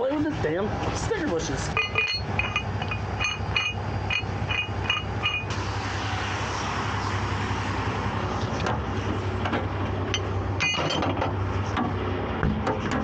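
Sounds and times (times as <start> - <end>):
truck engine running: 0.0 - 13.0
metal hooks and chains clinking: 1.7 - 5.5, 10.1 - 11.2.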